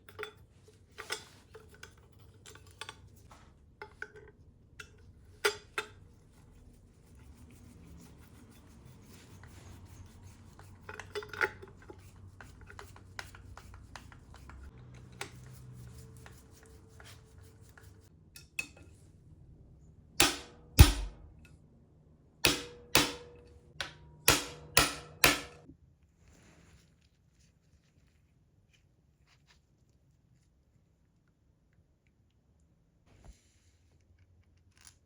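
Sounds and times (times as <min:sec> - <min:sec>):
sharp ringing metallic knocks: 0:20.2 - 0:21.4, 0:22.5 - 0:25.7.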